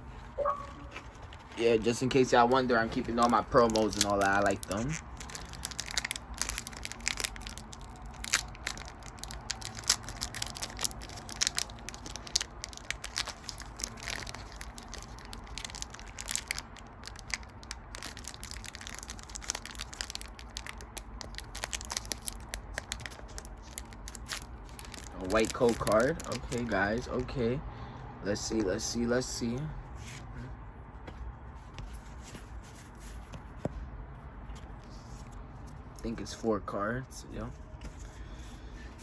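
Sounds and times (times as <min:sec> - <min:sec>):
cards being handled: 0:00.8 - 0:05.7
foil wrapper crinkling and tearing: 0:01.3 - 0:27.2.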